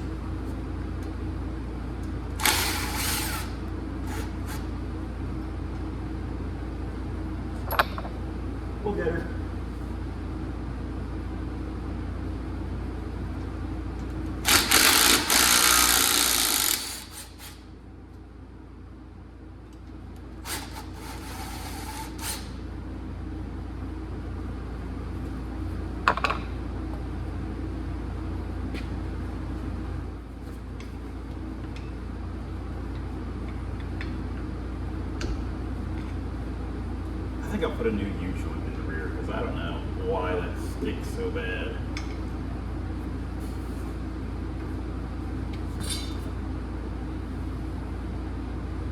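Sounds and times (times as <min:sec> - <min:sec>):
steady low hum: 0:00.0 - 0:48.9
power tool bursts: 0:02.4 - 0:04.6, 0:14.4 - 0:17.6, 0:20.4 - 0:22.6.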